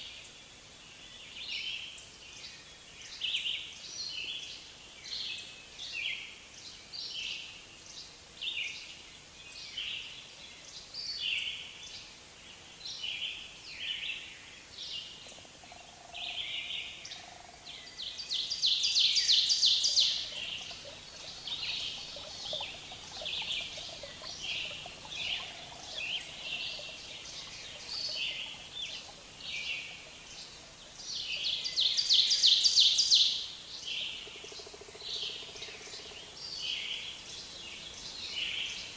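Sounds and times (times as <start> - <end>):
birds chirping: 18.0 - 33.4
rapid bird trill: 19.4 - 31.0.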